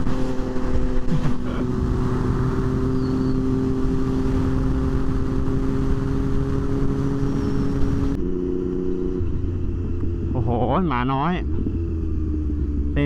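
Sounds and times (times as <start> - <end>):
wind rushing: 0.0 - 8.2
motorcycle engine running: 0.0 - 13.0
road noise: 0.0 - 13.0.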